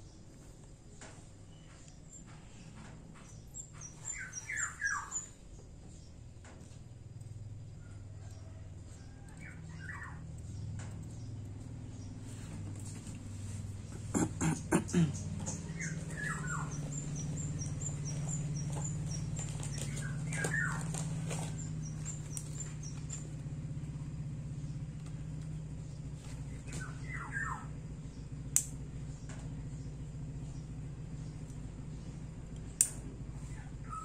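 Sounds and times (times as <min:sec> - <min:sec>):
birds chirping: 0:00.0 - 0:34.0
steady low hum: 0:00.0 - 0:34.0
thin high chirps: 0:15.2 - 0:23.2
sharp click: 0:28.6 - 0:28.8, 0:32.8 - 0:33.0.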